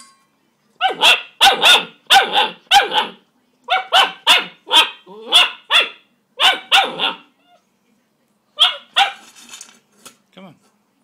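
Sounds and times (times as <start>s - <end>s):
puppy barking: 0.8s - 7.4s, 8.6s - 9.3s.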